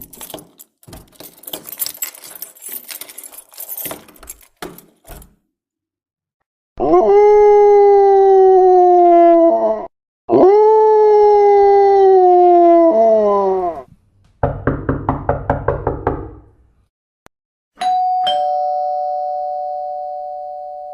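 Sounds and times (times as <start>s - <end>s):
long howls: 6.8s - 13.9s
two-tone doorbell chime: 17.8s - 20.9s.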